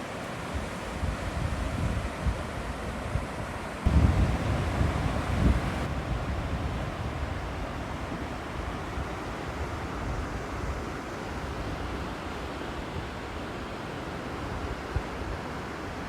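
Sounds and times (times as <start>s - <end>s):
river water rushing: 0.0s - 16.0s
wind on microphone: 0.5s - 12.0s.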